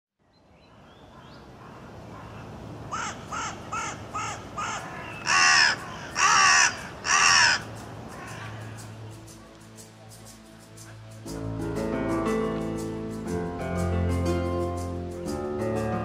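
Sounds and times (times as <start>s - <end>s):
bird calling harshly: 1.1s - 9.0s.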